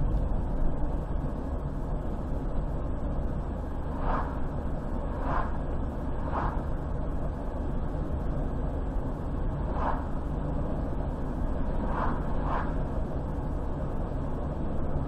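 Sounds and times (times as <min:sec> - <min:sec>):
car driving on highway: 0:00.0 - 0:15.0
short hissing swishes: 0:03.9 - 0:04.5, 0:05.1 - 0:05.6, 0:06.2 - 0:06.7, 0:09.7 - 0:10.2, 0:11.8 - 0:12.8.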